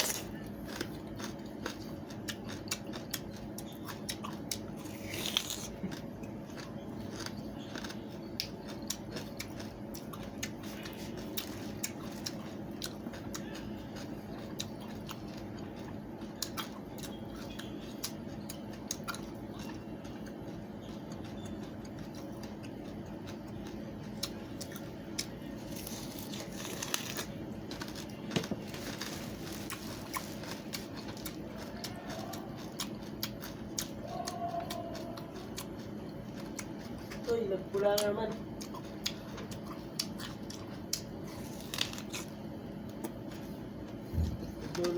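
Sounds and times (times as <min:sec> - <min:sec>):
steady low hum: 0:00.0 - 0:44.9
watermelon rind crunching: 0:00.0 - 0:44.9.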